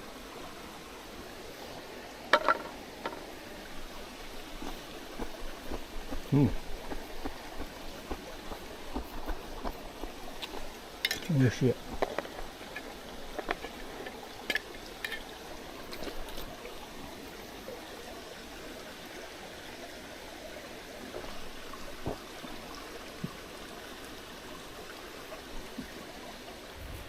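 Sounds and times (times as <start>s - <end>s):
mountain stream babbling: 0.0s - 26.9s.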